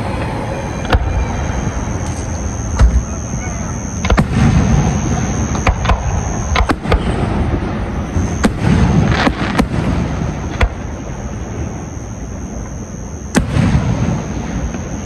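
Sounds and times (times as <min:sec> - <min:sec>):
fireworks bangs and pops: 0:04.0 - 0:11.8, 0:13.3 - 0:14.9.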